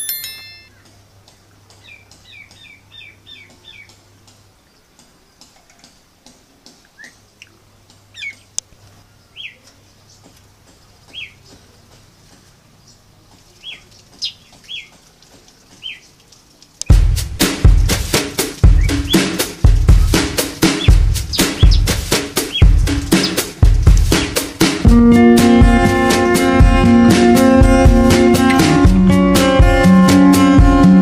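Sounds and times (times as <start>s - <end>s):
small birds chirping: 0.1s - 17.0s, 18.5s - 24.6s.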